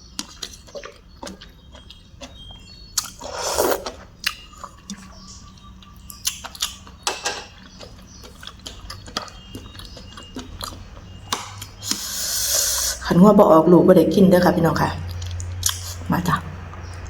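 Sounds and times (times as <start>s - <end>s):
spoon clinking against bowl: 1.7s - 7.8s
slurping broth: 3.1s - 4.1s, 11.8s - 13.0s.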